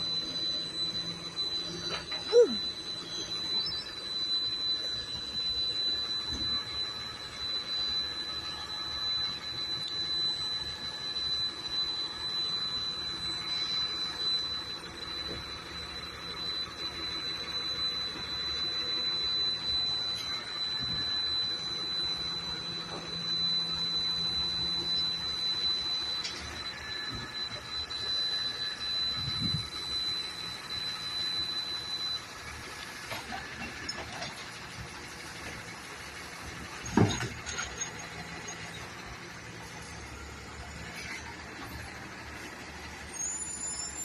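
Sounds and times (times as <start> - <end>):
garbage truck engine running: 0.0 - 44.0
high-pitched whine: 0.0 - 44.0.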